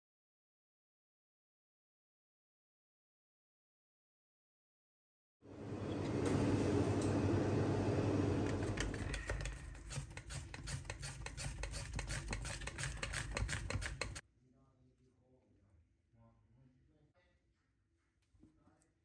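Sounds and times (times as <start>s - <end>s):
utensil clicking in a bowl: 8.4s - 14.2s.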